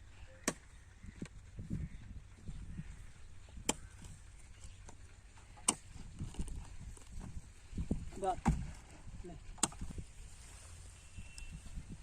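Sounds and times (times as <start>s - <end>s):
low steady rumble: 0.0s - 12.0s
soft thuds: 8.3s - 8.8s.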